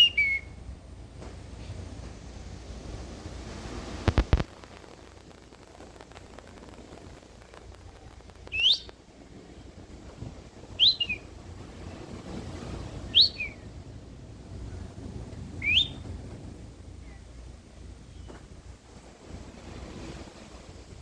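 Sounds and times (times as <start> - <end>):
whistled bird-like calls: 0.0 - 0.6, 8.4 - 9.0, 10.6 - 12.0, 12.7 - 13.8, 15.6 - 16.1.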